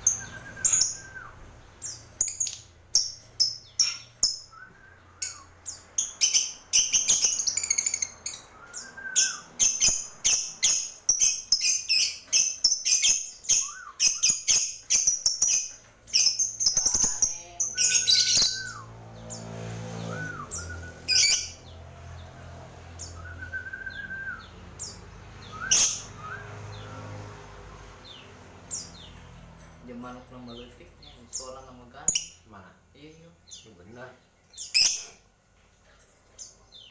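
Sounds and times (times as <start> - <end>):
small birds chirping: 0.0 - 36.9
rising and falling whistled note: 20.0 - 21.4, 25.4 - 26.9.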